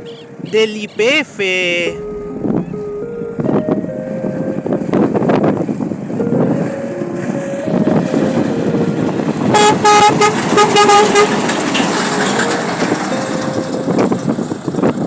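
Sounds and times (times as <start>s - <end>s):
truck engine and road noise: 0.0s - 15.0s
truck horn short toots: 9.5s - 11.4s.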